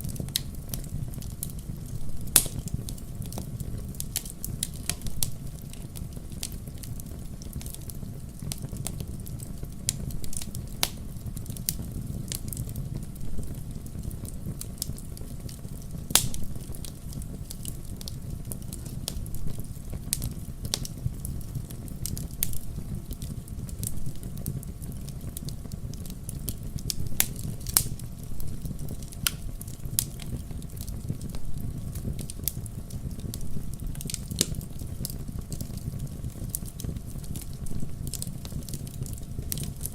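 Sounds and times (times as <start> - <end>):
fire crackles and pops: 0.0 - 39.9
low rumble of flames: 0.0 - 39.9.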